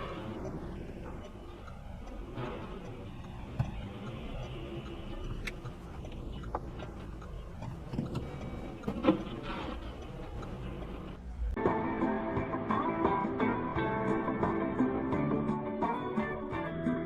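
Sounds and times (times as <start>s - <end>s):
vehicle interior rumble: 0.0s - 11.6s.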